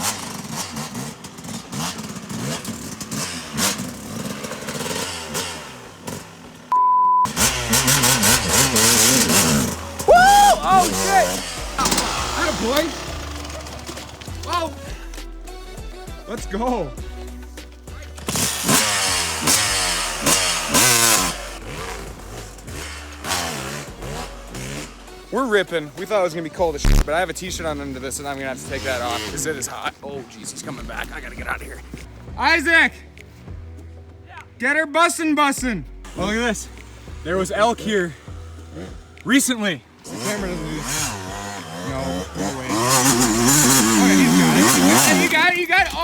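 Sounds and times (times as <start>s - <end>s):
dirt bike engine revving: 0.0s - 6.7s, 7.3s - 17.0s, 17.9s - 31.6s, 36.1s - 46.0s
short steady beep: 6.7s - 7.3s.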